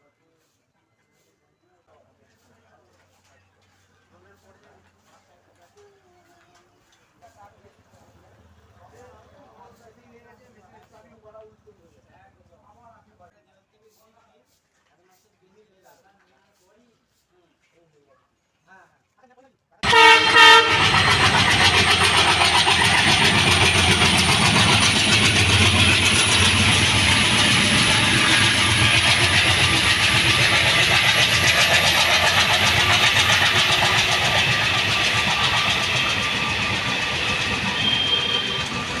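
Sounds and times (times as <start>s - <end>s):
diesel locomotive hauling train: 0.0s - 12.9s, 19.8s - 39.0s.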